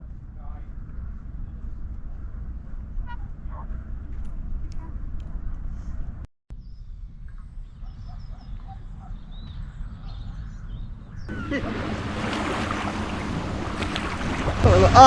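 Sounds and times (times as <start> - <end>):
wind rumbling on microphone: 0.0 - 15.0
birds calling faintly: 6.5 - 12.9
rushing water: 11.3 - 15.0.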